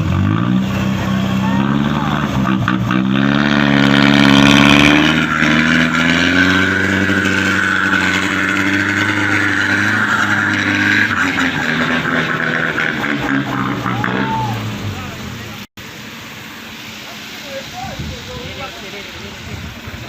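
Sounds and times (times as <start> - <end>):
truck engine revving under load: 0.0 - 15.7.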